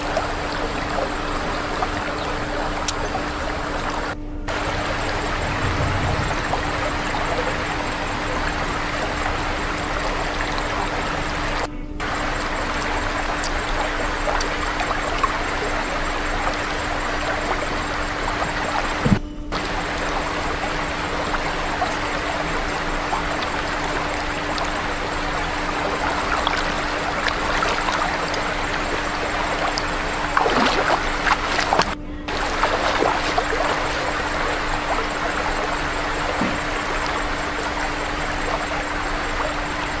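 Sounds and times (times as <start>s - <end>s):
crackles and clicks: 0.0s - 40.0s
faint steady hum: 0.0s - 40.0s
rushing stream water: 0.0s - 40.0s.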